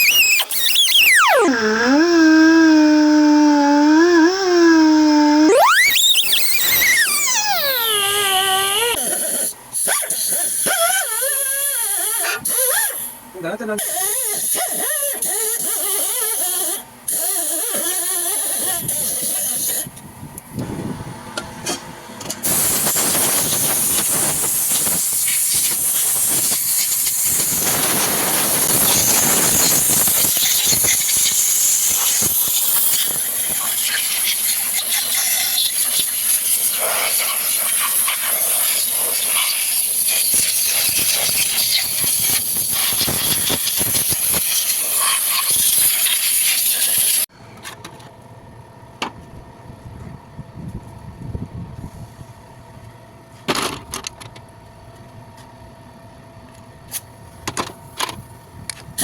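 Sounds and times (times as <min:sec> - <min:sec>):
high-pressure spray hissing: 0:00.0 - 0:09.0, 0:22.5 - 0:47.2.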